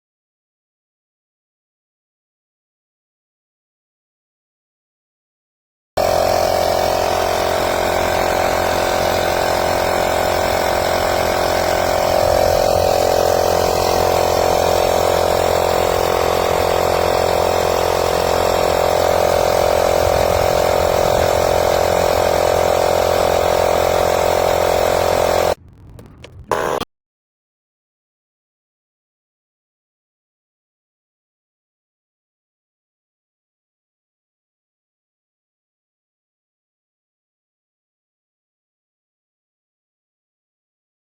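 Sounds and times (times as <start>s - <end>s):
air compressor motor droning: 6.0s - 26.8s.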